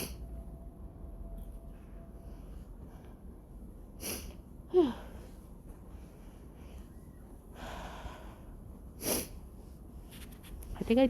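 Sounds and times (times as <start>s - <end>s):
person breathing hard: 2.7s - 9.5s.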